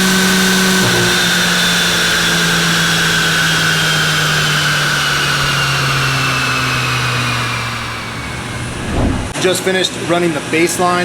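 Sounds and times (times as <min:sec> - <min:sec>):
car engine winding down: 0:00.0 - 0:09.4
high whine falling in pitch: 0:07.6 - 0:09.6.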